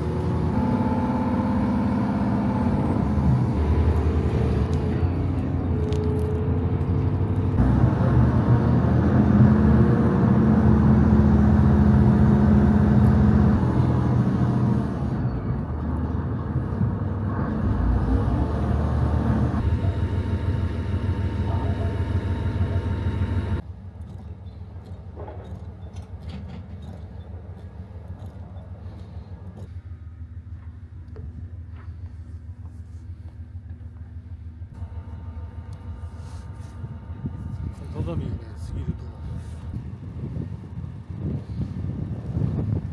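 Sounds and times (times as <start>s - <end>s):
train rumbling: 0.0s - 30.8s.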